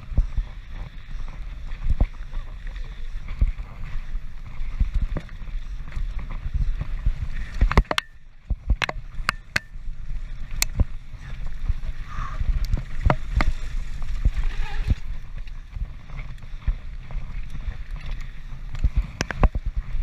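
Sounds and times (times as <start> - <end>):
bike rattling: 0.0 - 20.0
wind rumble on microphone: 0.0 - 20.0
sharp clicks and knocks: 7.6 - 9.7, 18.8 - 19.6.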